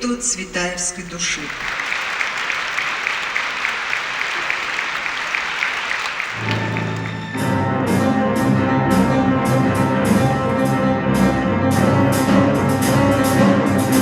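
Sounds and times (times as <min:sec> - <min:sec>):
audience applause: 0:01.2 - 0:07.6
orchestra playing classical music: 0:06.0 - 0:14.0.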